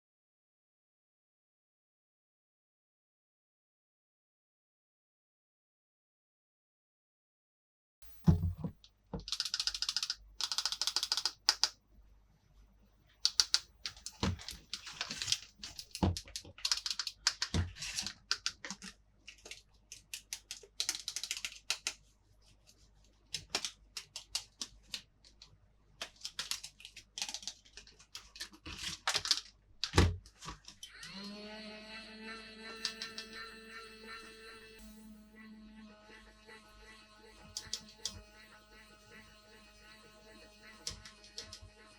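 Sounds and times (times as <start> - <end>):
plastic pieces clicking: 26.0 - 30.8.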